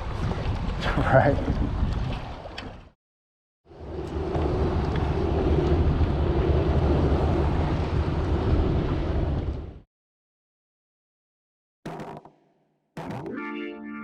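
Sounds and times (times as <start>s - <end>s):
wind buffeting microphone: 0.0s - 2.9s, 3.7s - 9.8s.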